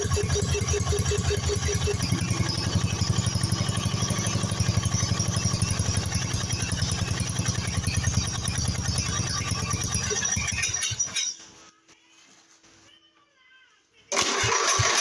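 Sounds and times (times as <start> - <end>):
small engine running steadily: 0.0 - 10.8, 14.2 - 15.0.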